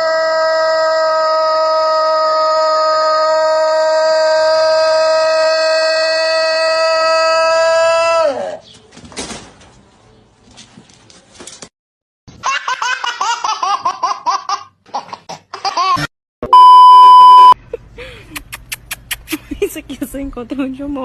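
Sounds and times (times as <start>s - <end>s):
loud steady beep: 16.5s - 17.6s
person laughing: 17.6s - 19.7s.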